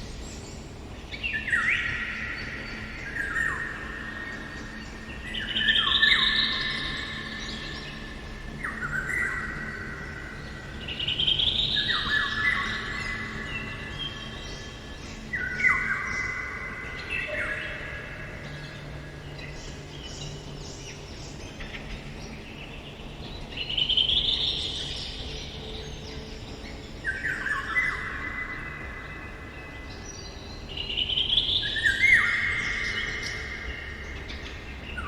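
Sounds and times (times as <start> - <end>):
bird whistling song: 8.6 - 18.8, 29.8 - 35.0.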